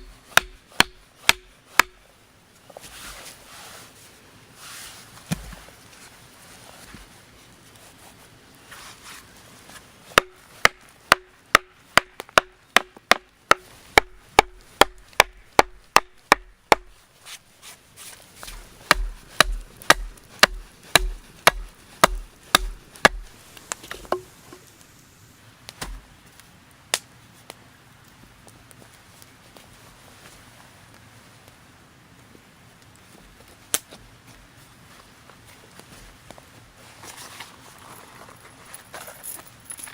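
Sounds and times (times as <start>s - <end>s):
axe chopping wood: 0.0s - 2.0s, 10.2s - 17.0s, 18.4s - 24.4s, 25.8s - 26.0s.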